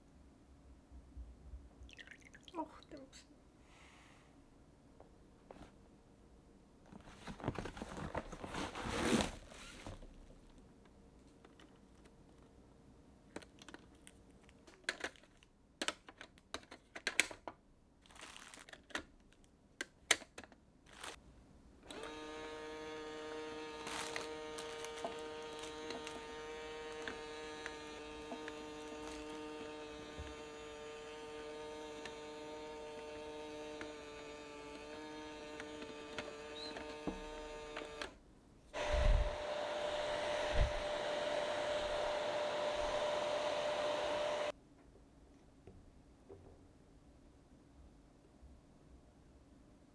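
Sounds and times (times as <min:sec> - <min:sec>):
small electric appliance humming: 0:21.8 - 0:44.5
airy whirring: 0:38.8 - 0:44.5.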